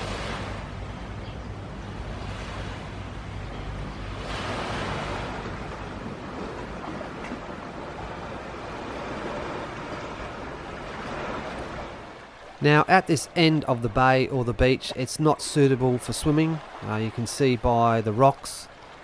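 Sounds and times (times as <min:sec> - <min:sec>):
wind rumbling on microphone: 0:00.0 - 0:12.5
small waves washing onto beach: 0:00.0 - 0:19.0.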